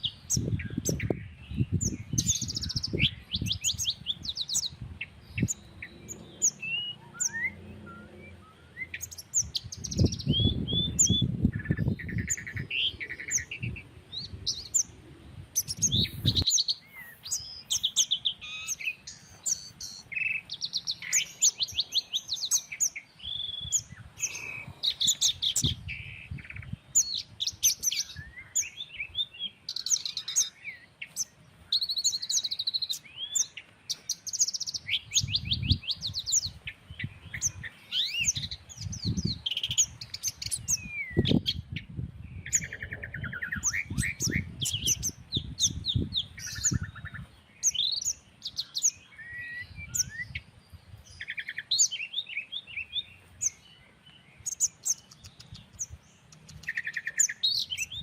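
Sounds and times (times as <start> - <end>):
birds singing and calling: 0.0 - 58.0.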